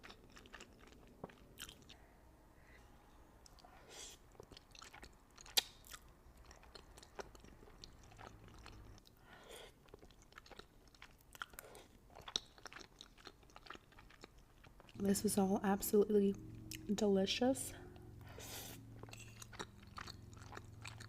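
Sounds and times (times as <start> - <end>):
close chewing and mouth sounds: 0.0 - 2.2, 3.2 - 17.1, 17.7 - 21.0.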